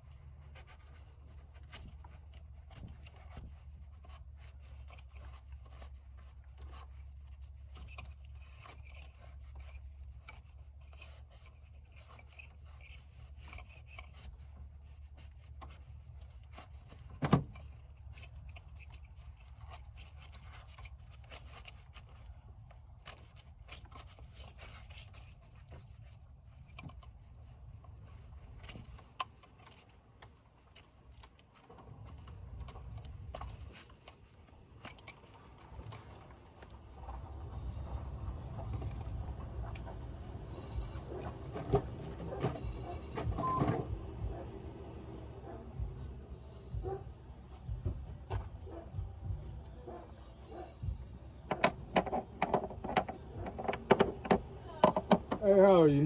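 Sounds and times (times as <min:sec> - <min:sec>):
small scrapes and rubs: 0:00.0 - 0:43.3
steady low hum: 0:00.0 - 0:56.0.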